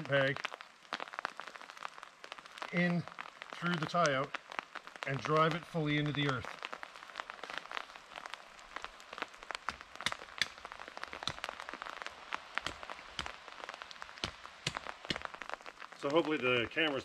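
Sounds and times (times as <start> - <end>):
raindrops pattering: 0.0 - 17.0.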